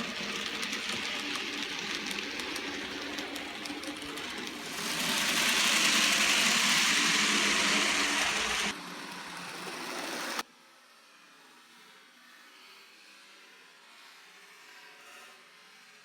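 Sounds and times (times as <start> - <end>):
model train motor humming: 0.0 - 10.4
wheels rattling on track: 0.0 - 10.4.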